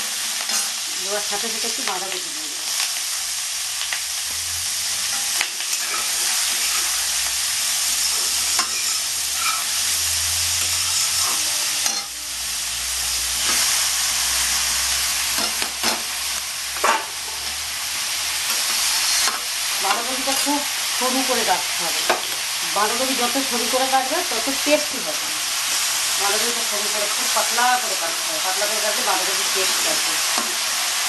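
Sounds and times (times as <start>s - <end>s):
oil sizzling in a wok: 0.0s - 31.0s
metal spatula scraping pan: 5.1s - 7.0s, 7.9s - 10.0s, 10.6s - 12.2s.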